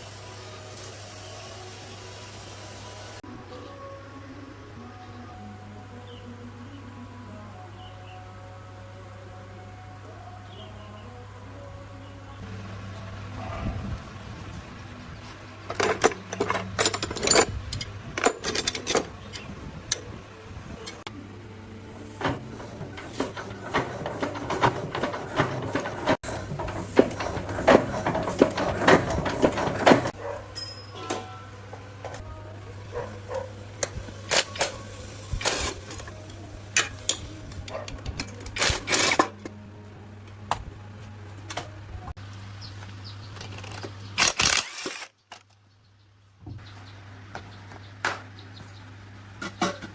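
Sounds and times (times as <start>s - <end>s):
hand tools clicking on metal: 15.7s - 20.1s
short metallic ring: 30.6s - 31.4s.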